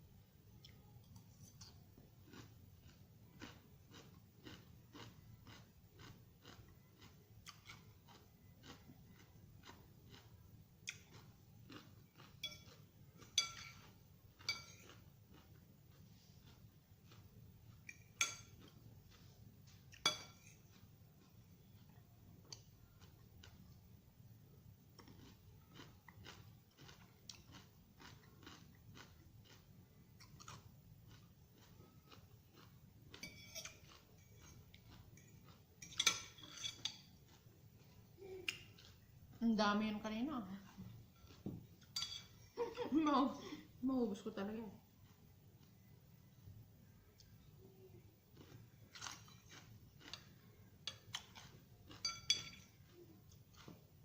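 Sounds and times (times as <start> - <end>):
chewing raw vegetables: 0.6 - 23.8, 24.9 - 39.4, 40.4 - 42.0, 47.1 - 54.0
fork clinking against plate: 12.4 - 15.0, 20.0 - 20.7, 33.1 - 34.6, 35.2 - 37.1, 41.2 - 42.4, 50.9 - 52.8.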